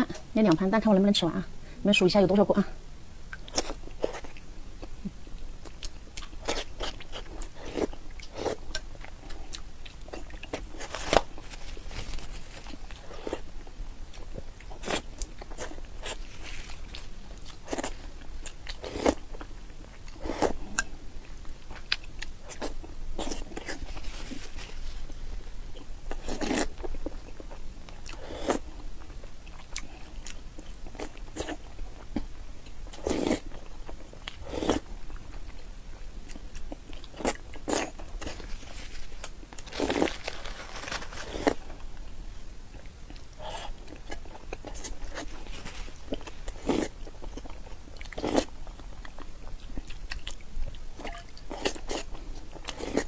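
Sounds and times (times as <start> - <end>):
chewing and mouth sounds: 3.3 - 13.5, 42.7 - 53.0.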